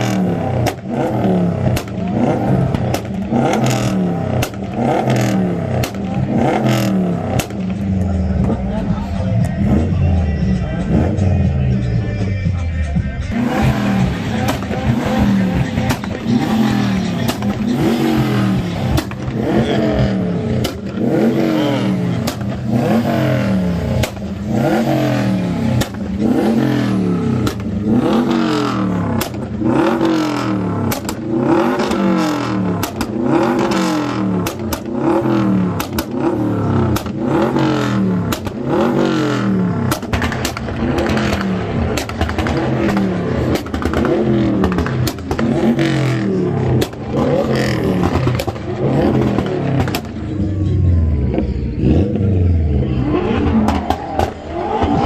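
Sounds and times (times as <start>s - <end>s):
car engine revving: 0.0s - 12.3s, 13.1s - 55.0s
exhaust crackles: 13.3s - 55.0s.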